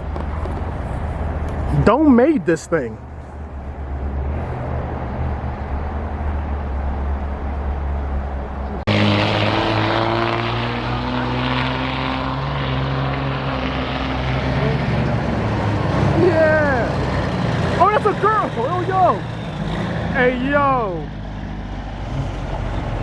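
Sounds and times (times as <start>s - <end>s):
truck diesel engine running: 12.4s - 23.0s.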